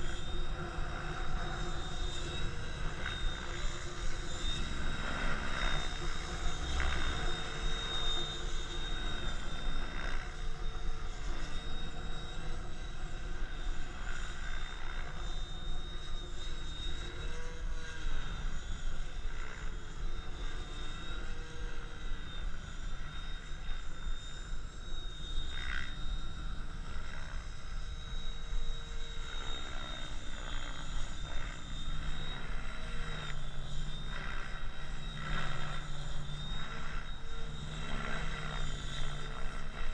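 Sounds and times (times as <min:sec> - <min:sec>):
rc helicopter motor whine: 0:00.0 - 0:39.9.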